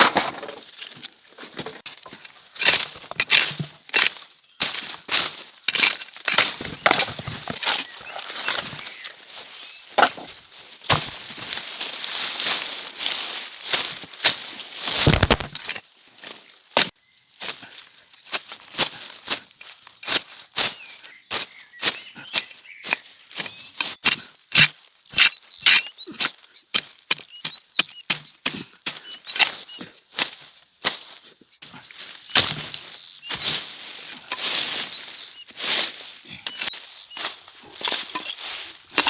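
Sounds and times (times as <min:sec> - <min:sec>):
sharp cracks and knocks: 0:01.9 - 0:04.2, 0:05.1 - 0:07.9, 0:14.8 - 0:15.8, 0:23.8 - 0:25.9, 0:32.3 - 0:32.8
small birds chirping: 0:03.9 - 0:10.7, 0:19.0 - 0:39.0.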